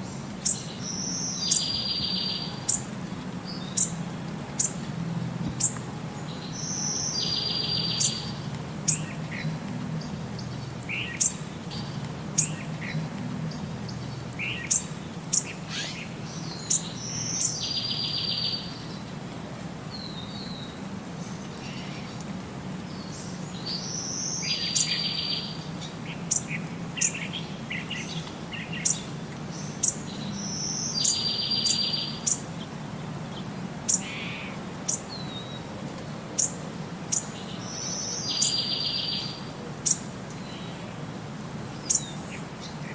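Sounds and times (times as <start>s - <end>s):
bird chirping: 0.4s - 2.9s, 5.6s - 18.9s, 23.0s - 32.4s, 36.4s - 40.8s.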